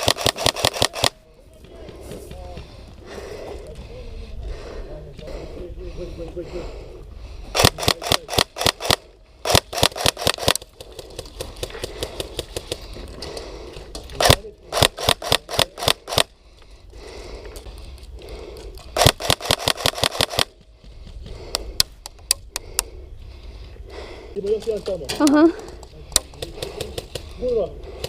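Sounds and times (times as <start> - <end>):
airsoft guns firing: 0.0 - 1.2, 7.6 - 10.7, 14.2 - 16.3, 19.0 - 20.6.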